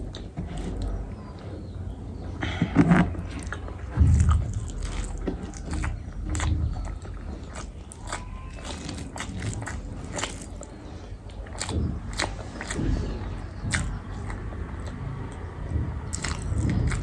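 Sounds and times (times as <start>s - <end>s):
person chewing food: 0.0s - 1.5s, 2.4s - 17.0s
soft low thumps: 1.7s - 8.0s, 11.4s - 17.0s.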